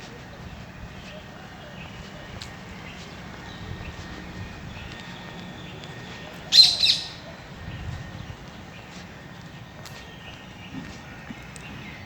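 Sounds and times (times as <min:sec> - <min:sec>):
birds chirping: 0:00.0 - 0:12.0
harsh bird double call: 0:06.5 - 0:07.2.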